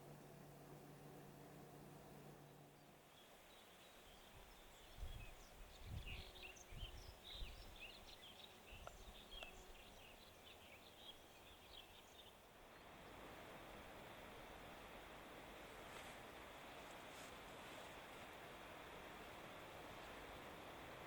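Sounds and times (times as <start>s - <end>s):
small birds chirping: 0.0s - 13.0s
wind rumbling on microphone: 4.1s - 10.1s.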